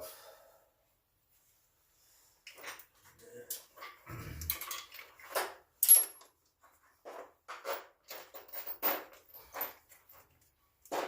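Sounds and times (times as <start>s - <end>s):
metal tools clicking and scraping: 3.5s - 6.4s.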